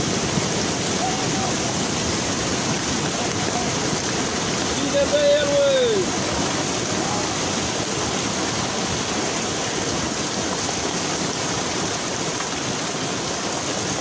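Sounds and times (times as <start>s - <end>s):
rushing splashing water: 0.0s - 14.0s.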